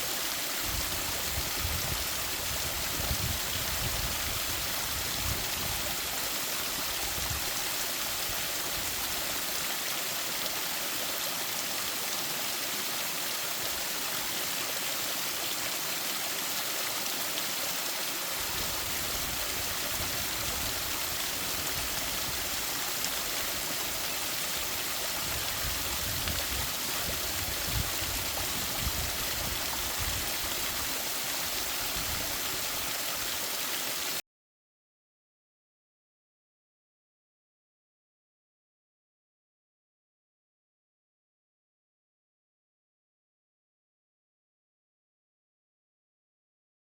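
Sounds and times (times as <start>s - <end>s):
stream rushing over rocks: 0.0s - 34.2s.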